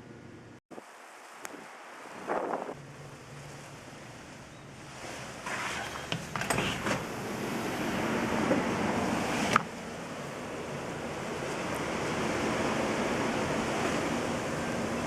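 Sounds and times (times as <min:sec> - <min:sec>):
snowstorm wind rushing: 0:01.5 - 0:02.8, 0:06.9 - 0:15.0.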